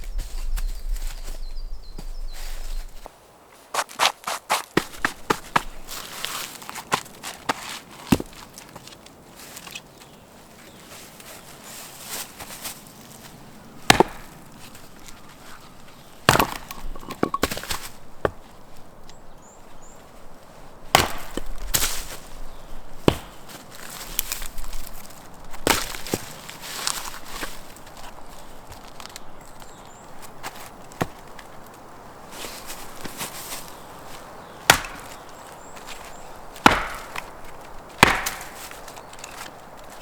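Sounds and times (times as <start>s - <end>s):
wood being chopped: 3.8s - 5.8s, 6.9s - 8.4s, 13.8s - 14.4s, 16.2s - 18.4s, 20.9s - 22.0s, 23.0s - 23.5s, 25.6s - 26.3s, 34.6s - 35.4s, 36.0s - 39.5s
wood splintering crack: 13.9s - 14.4s, 16.3s - 17.8s, 20.9s - 21.6s, 34.7s - 35.2s, 36.6s - 40.0s.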